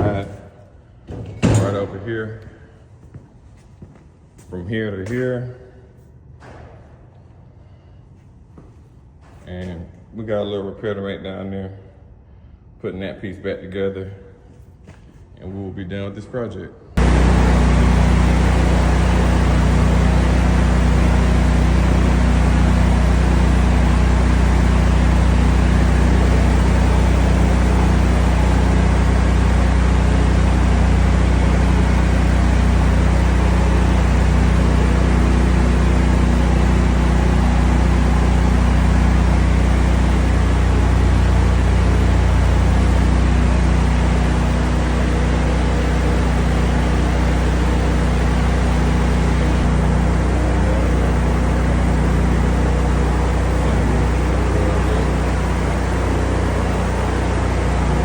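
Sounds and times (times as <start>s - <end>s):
engine humming steadily: 17.0s - 58.0s.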